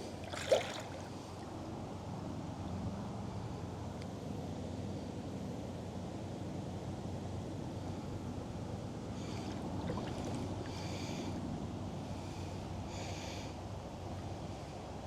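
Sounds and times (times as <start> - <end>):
river water rushing: 0.2 - 1.1.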